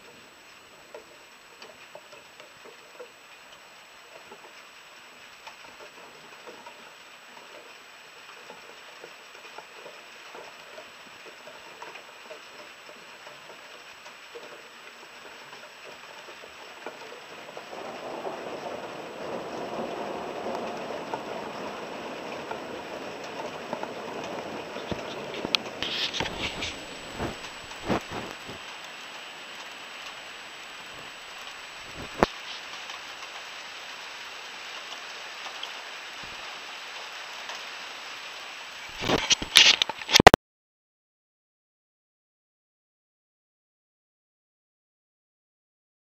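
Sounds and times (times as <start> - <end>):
rain pattering: 0.0 - 40.4.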